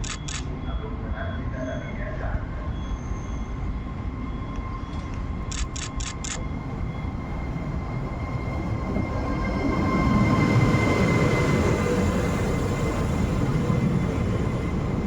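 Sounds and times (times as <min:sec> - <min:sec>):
quick clicks: 0:00.0 - 0:00.5, 0:05.5 - 0:06.4
train rumble: 0:00.0 - 0:15.0.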